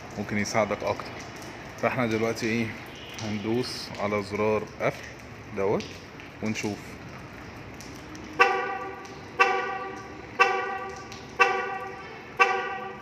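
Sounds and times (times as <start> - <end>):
car horn honking: 8.4 - 13.0.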